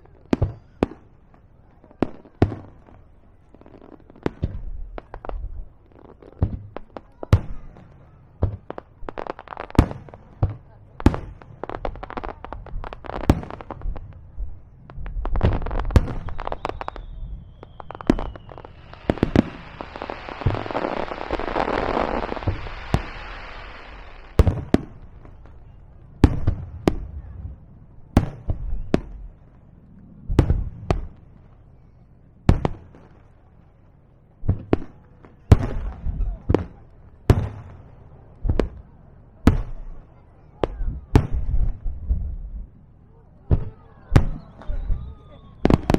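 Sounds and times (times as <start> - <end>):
fireworks bursting: 0.0 - 29.6, 34.5 - 42.8, 43.4 - 45.9
firework hiss: 15.3 - 24.4
falling firework whistle: 16.0 - 24.4, 43.6 - 45.9.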